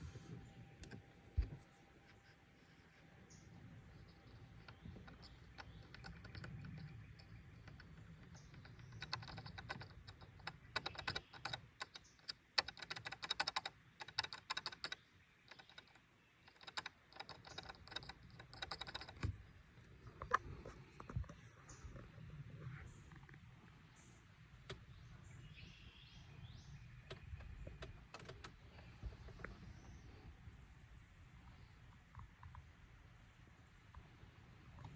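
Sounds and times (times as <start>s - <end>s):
plastic trim rattling: 3.9s - 21.3s.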